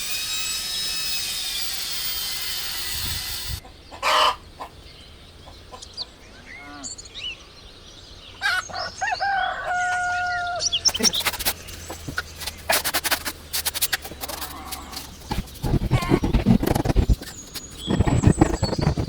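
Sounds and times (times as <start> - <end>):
rooster crowing: 9.0 - 10.7.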